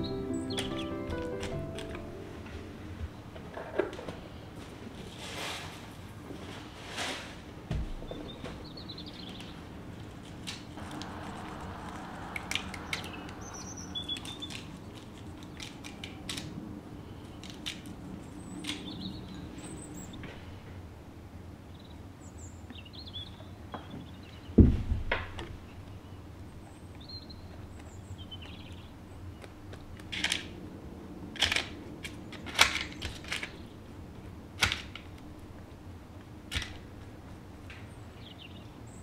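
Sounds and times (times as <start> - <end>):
small birds chirping: 0.0 - 1.2, 8.1 - 9.7, 10.6 - 16.2, 16.9 - 20.6, 25.6 - 29.5, 37.8 - 39.0
loud thump: 24.6 - 25.4.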